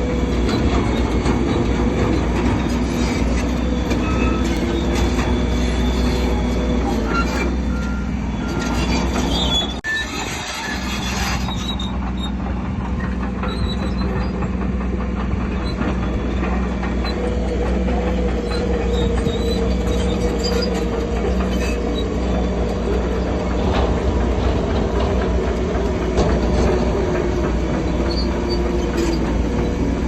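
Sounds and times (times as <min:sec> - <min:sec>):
bulldozer diesel engine running: 0:00.0 - 0:30.0
steel tracks squealing and clanking: 0:00.0 - 0:30.0.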